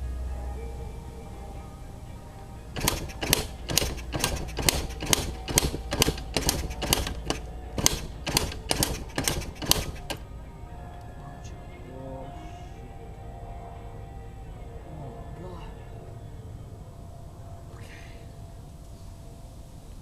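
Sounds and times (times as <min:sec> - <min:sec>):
faint background music: 0:00.0 - 0:20.0
sharp knocks: 0:02.8 - 0:10.2.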